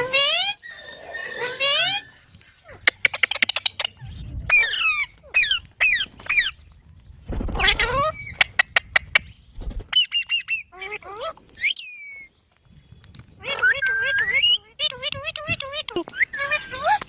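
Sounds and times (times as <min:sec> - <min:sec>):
parrot harsh calls: 0:00.0 - 0:03.6, 0:04.5 - 0:06.5.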